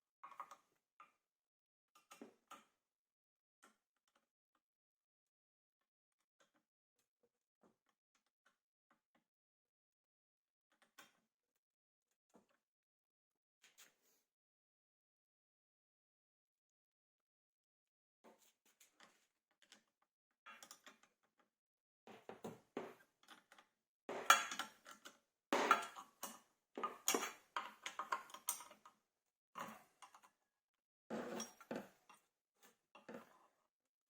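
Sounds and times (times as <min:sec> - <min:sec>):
hard objects clinking and clattering: 0:24.1 - 0:25.0, 0:25.6 - 0:28.6.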